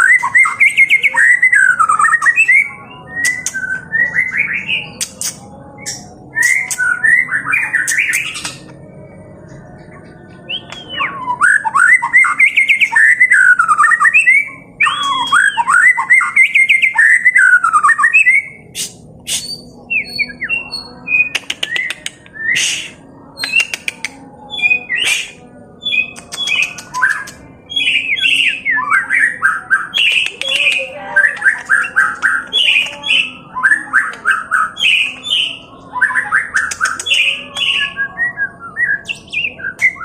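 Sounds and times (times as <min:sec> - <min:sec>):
bird singing whistled notes: 0:00.0 - 0:08.6, 0:10.5 - 0:23.8, 0:31.2 - 0:40.0
bird sharp clicks: 0:21.2 - 0:24.2, 0:26.0 - 0:27.4, 0:29.9 - 0:33.2, 0:36.6 - 0:37.2.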